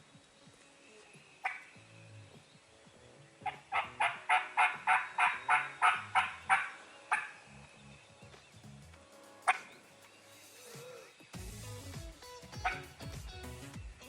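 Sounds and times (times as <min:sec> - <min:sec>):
turkey yelping: 0:03.4 - 0:07.4.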